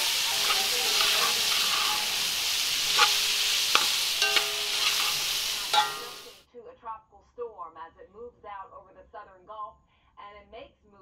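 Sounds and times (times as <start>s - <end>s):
metal spoon knocking pot: 0.0s - 6.3s
meatballs sizzling in pot: 0.0s - 6.4s.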